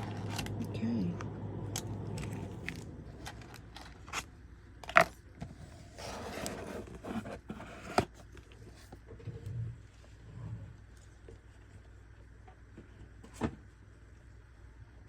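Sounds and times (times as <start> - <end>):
rustling scrape: 5.6 - 8.9.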